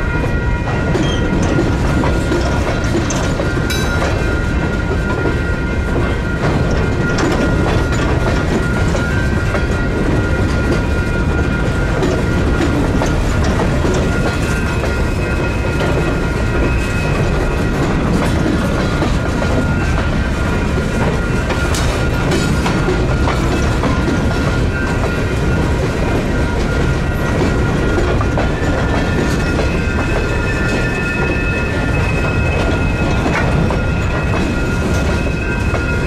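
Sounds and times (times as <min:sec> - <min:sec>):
train rumble: 0:00.0 - 0:36.0
wheels clicking over rail joints: 0:00.7 - 0:36.0
high ringing tone: 0:19.6 - 0:36.0.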